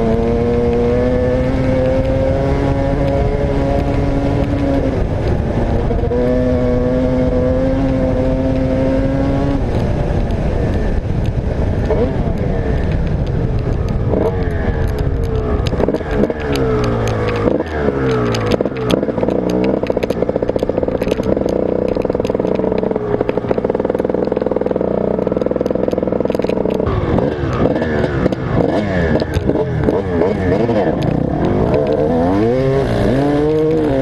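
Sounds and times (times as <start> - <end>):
motocross bike engine revving: 0.0 - 10.2, 14.1 - 34.0
sharp clicks: 9.4 - 34.0.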